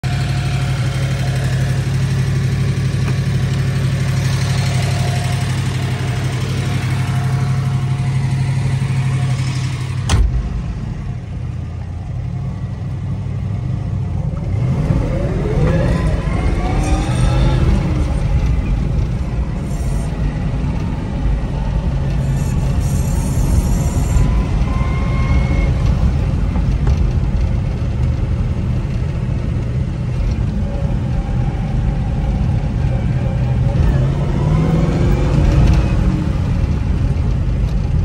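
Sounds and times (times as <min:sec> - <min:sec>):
muffled engine revving: 0:00.0 - 0:12.2, 0:13.6 - 0:38.0
car engine idling: 0:00.0 - 0:33.8
car door slamming: 0:10.0 - 0:10.6.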